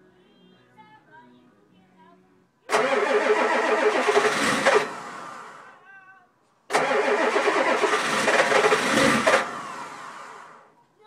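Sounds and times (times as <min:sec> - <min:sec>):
diesel engine cranking: 0:02.7 - 0:05.7, 0:06.7 - 0:10.7.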